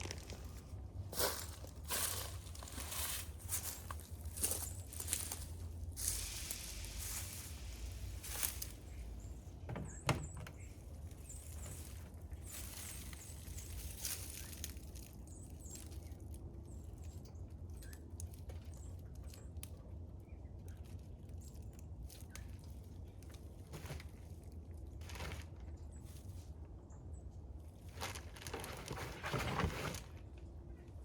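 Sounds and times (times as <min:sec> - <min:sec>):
birdseed rattling and rustling: 0:00.0 - 0:09.2, 0:10.6 - 0:19.6, 0:20.5 - 0:26.5, 0:27.7 - 0:30.2
small birds chirping: 0:01.2 - 0:23.6.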